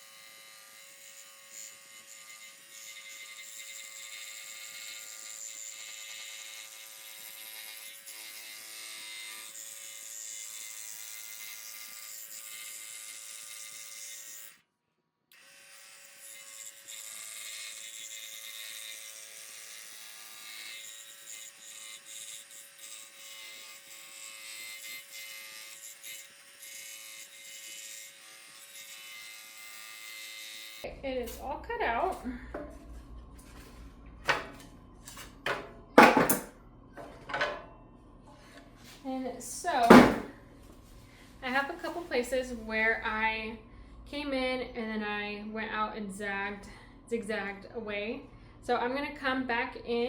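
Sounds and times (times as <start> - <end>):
scroll saw cutting wood: 0.0 - 14.6, 15.3 - 31.5.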